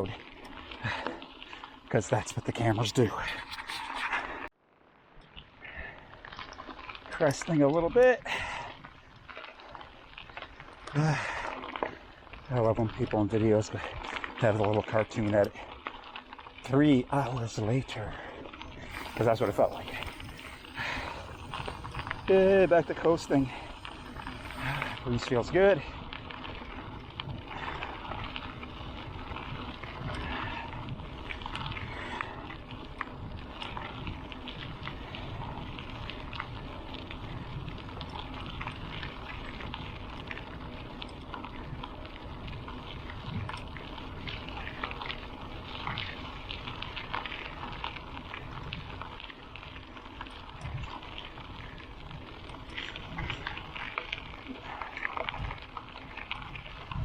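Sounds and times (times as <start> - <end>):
tyres rolling over gravel: 0.0 - 3.6, 6.0 - 57.0
wind buffeting microphone: 18.7 - 49.7, 50.4 - 54.5, 55.2 - 57.0.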